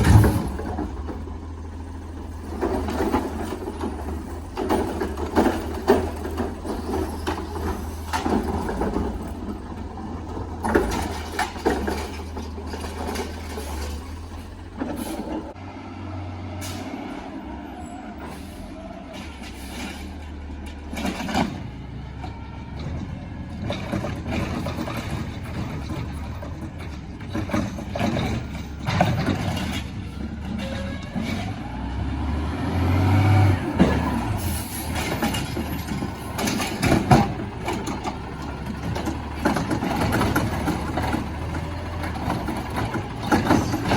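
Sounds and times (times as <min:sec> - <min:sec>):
knocks and clanks: 0:00.0 - 0:15.6, 0:19.1 - 0:31.8, 0:33.7 - 0:43.9
garbage truck engine humming: 0:00.0 - 0:43.9
air brakes hissing: 0:16.5 - 0:17.2, 0:17.9 - 0:20.2, 0:34.4 - 0:35.0.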